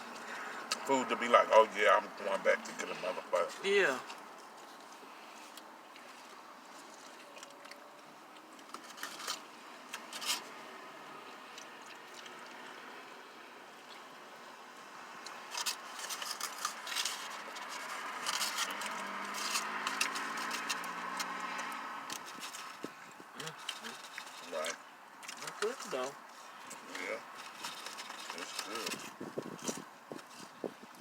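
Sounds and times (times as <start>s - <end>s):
paper wrappers being handled: 8.7s - 10.5s, 15.3s - 30.6s.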